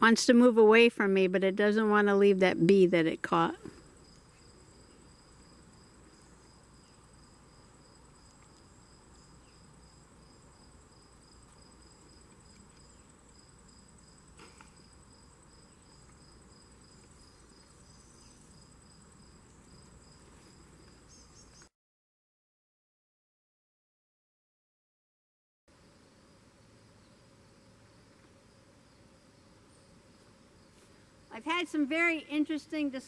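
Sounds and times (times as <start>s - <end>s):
high-pitched insect trills: 3.8s - 21.7s.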